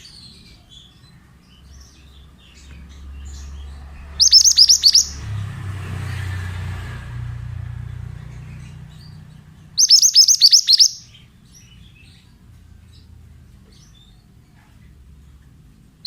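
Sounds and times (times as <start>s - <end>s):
faint chirps: 0.0s - 5.3s, 9.8s - 12.2s
songbird singing rapid high notes: 1.6s - 5.6s, 8.0s - 11.8s.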